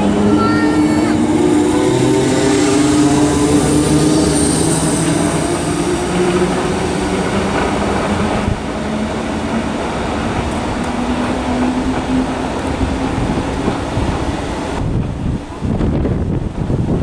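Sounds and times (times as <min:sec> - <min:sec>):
train motor hum: 0:00.0 - 0:16.8
electric train pulling out: 0:00.0 - 0:17.0.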